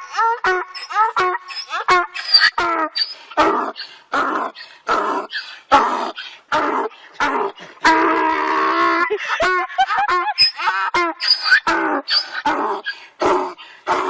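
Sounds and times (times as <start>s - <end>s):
dog whining and yipping: 0.7s - 3.2s, 10.4s - 12.4s.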